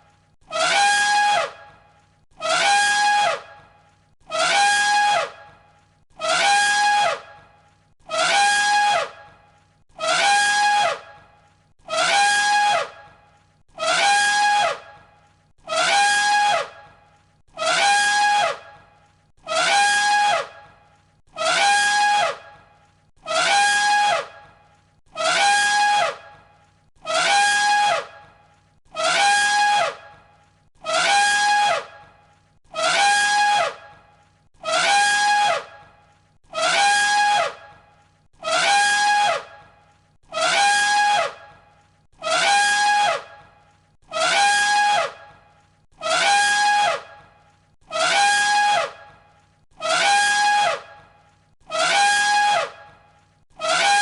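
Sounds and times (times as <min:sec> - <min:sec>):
elephant trumpet call: 0:00.5 - 0:01.8, 0:02.4 - 0:03.7, 0:04.3 - 0:05.5, 0:06.2 - 0:07.5, 0:08.1 - 0:09.4, 0:10.0 - 0:13.2, 0:13.8 - 0:15.0, 0:15.6 - 0:17.0, 0:17.6 - 0:18.8, 0:19.4 - 0:24.5, 0:25.1 - 0:28.3, 0:28.9 - 0:34.0, 0:34.6 - 0:37.8, 0:38.4 - 0:41.6, 0:42.2 - 0:43.5, 0:44.1 - 0:47.3, 0:47.9 - 0:51.1, 0:51.7 - 0:53.0, 0:53.6 - 0:54.0.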